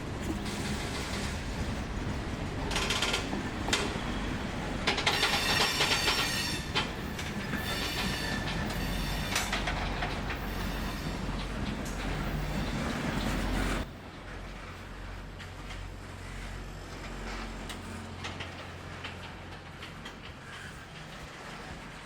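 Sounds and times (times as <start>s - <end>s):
train wheels clicking on rails: 0.0s - 22.0s
metallic wheel squeal: 5.1s - 9.5s, 10.4s - 11.4s.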